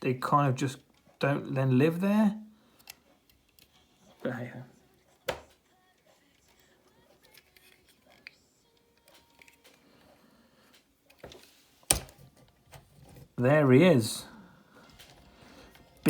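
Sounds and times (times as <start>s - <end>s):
plastic toy parts clicking: 2.8s - 3.8s, 6.2s - 9.8s.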